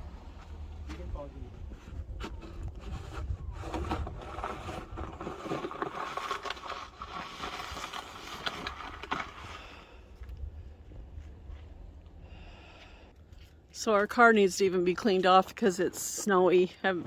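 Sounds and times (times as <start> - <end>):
snow shovel scraping snow: 2.4 - 9.8.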